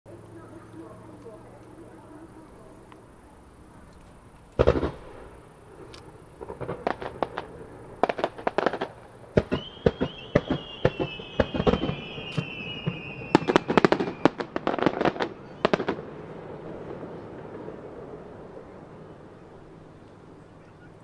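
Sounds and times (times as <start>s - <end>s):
firework launches and bursts: 4.6s - 17.9s
falling firework whistle: 6.6s - 16.0s.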